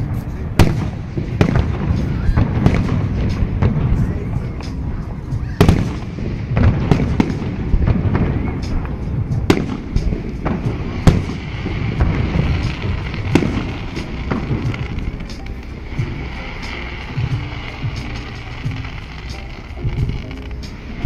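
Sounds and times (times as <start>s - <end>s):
low rumble of booms: 0.0s - 16.4s
firework shells bursting: 0.0s - 21.0s.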